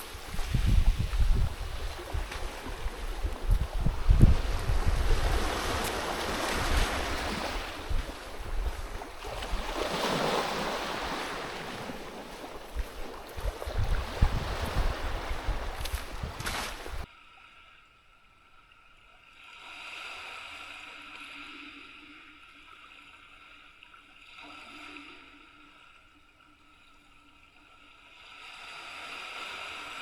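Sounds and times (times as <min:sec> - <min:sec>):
wind buffeting microphone: 0:00.0 - 0:10.0, 0:10.6 - 0:17.1
water noise: 0:00.0 - 0:30.0.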